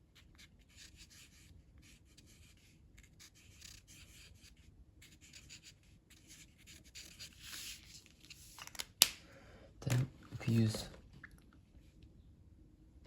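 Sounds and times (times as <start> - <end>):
colouring tool scratching on paper: 0.2 - 7.8.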